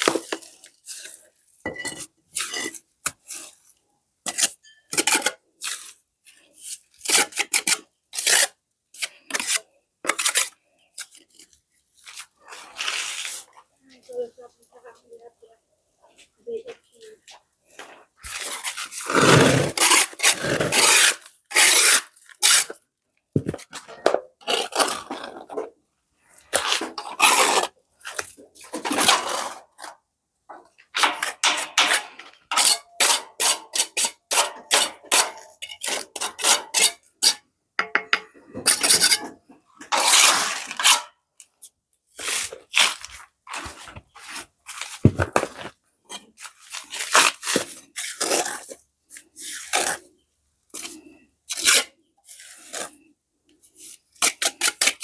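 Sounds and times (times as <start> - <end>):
hand scraping and rubbing strokes: 11.9 - 15.2.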